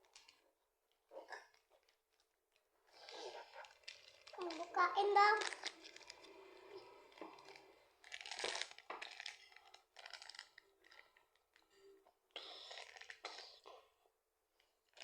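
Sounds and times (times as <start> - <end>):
plastic packaging being opened: 3.6 - 11.1.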